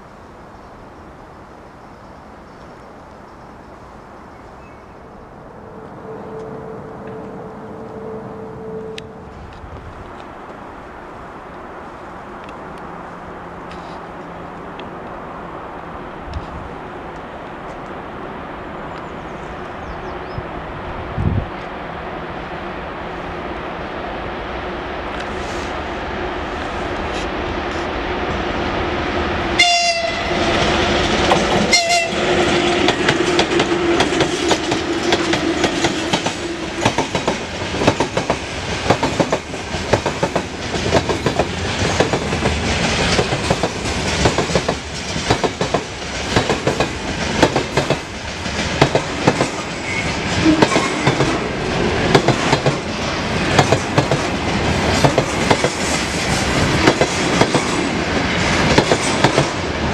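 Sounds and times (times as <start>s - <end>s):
train horn blasts: 5.5s - 9.4s, 29.6s - 30.6s, 31.7s - 32.8s
train wheels clattering over rail joints: 30.5s - 59.7s.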